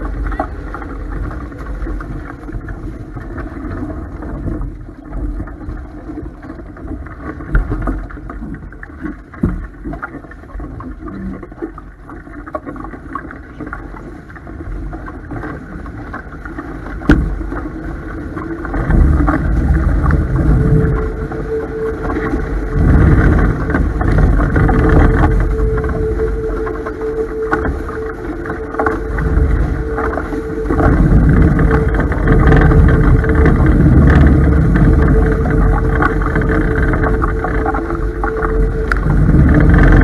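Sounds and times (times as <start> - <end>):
water rushing along hulls: 0.0 - 40.0
wind buffeting microphone: 15.0 - 40.0
knocks on boat: 17.0 - 17.4.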